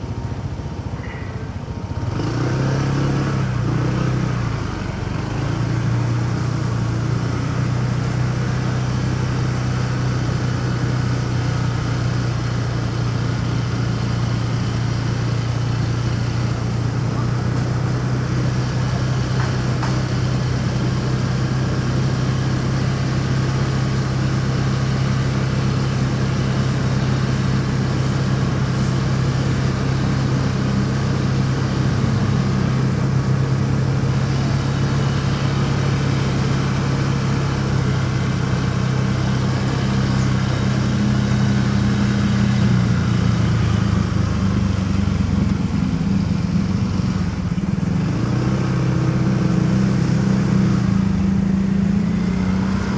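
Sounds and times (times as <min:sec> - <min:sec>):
motorcycle engine running: 0:00.0 - 0:52.9
road and traffic noise: 0:00.0 - 0:52.9.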